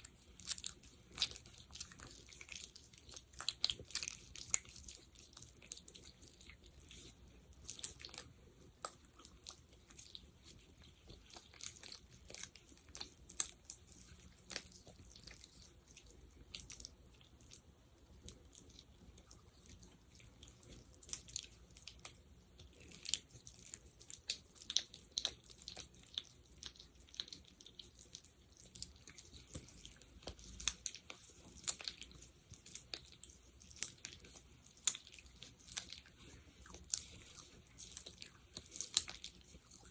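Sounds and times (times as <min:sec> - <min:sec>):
sticky gel clicking and crackling: 0:00.0 - 0:39.9.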